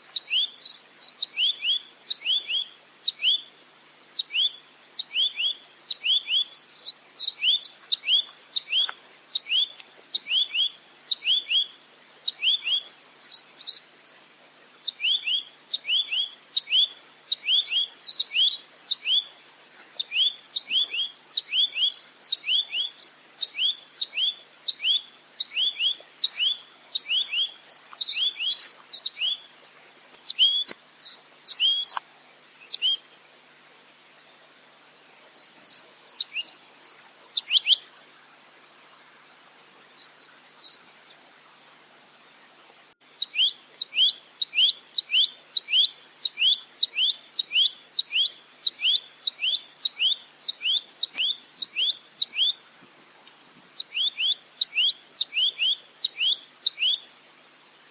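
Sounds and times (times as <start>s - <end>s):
nuthatch song chips: 43.2s - 52.6s.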